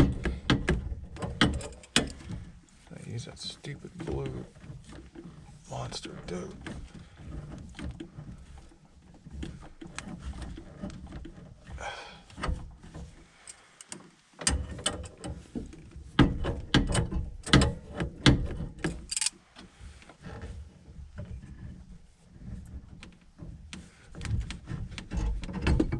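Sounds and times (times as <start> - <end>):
metal tools clicking and knocking: 0.1 - 2.2, 18.8 - 19.3.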